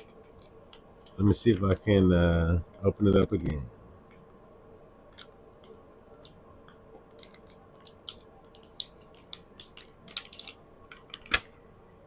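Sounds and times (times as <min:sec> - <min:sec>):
plastic bag crinkling: 0:07.2 - 0:11.4.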